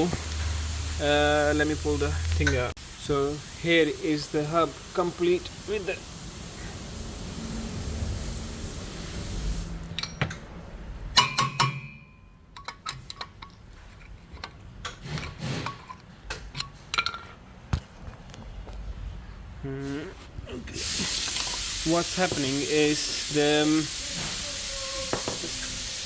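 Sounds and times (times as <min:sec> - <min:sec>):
steady hiss: 0:00.0 - 0:10.1, 0:20.8 - 0:26.0
metal clinks and knocks: 0:09.9 - 0:17.4
ringing metallic strikes: 0:11.2 - 0:12.4.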